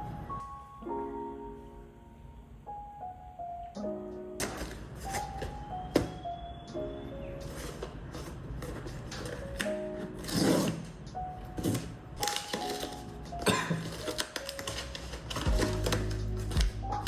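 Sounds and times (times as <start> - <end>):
gentle background music: 0.0 - 17.0
packaging rustling and clicking: 4.4 - 6.2, 7.4 - 17.0.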